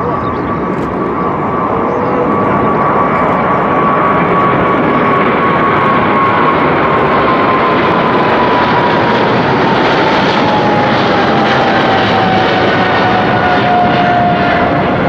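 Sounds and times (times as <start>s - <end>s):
jet engines at takeoff power: 0.0s - 15.0s.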